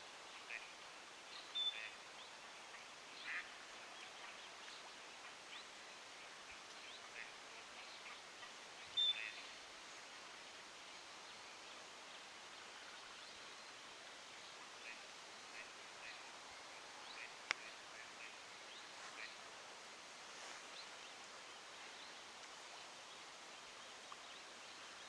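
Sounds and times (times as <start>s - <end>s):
outdoor background hiss: 0.0s - 25.0s
small birds calling: 6.5s - 9.5s.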